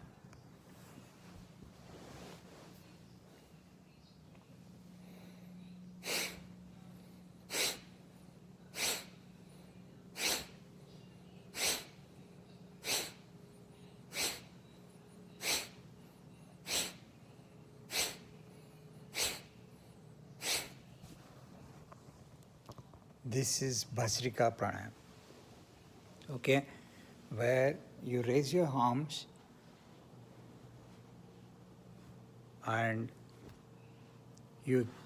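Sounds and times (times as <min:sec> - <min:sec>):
forceful nasal exhalations: 0:06.0 - 0:06.5, 0:07.5 - 0:07.9, 0:08.7 - 0:09.2, 0:10.2 - 0:10.6, 0:11.5 - 0:12.0, 0:12.8 - 0:13.2, 0:14.1 - 0:14.5, 0:15.4 - 0:15.8, 0:16.6 - 0:17.0, 0:17.9 - 0:18.3, 0:19.1 - 0:19.5, 0:20.4 - 0:20.8.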